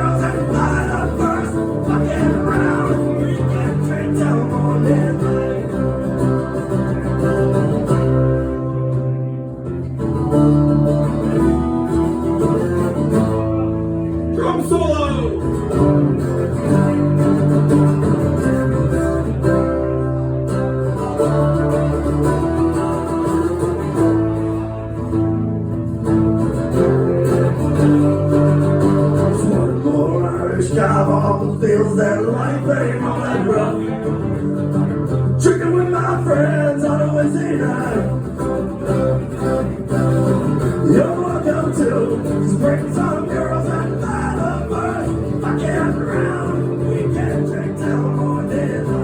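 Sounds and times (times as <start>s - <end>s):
person singing: 0.0s - 6.4s, 29.2s - 34.4s, 35.4s - 38.5s, 40.8s - 49.0s
acoustic guitar strummed chords: 0.0s - 49.0s.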